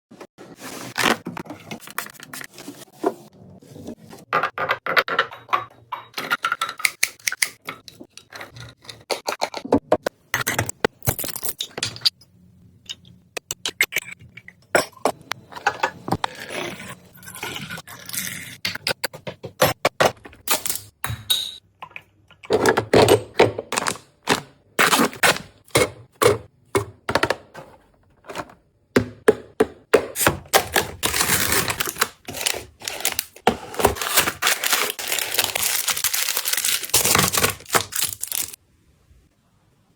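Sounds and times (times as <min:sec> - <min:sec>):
plastic containers tapping and clicking: 0:25.7 - 0:31.0
packaging rustling: 0:30.4 - 0:38.6.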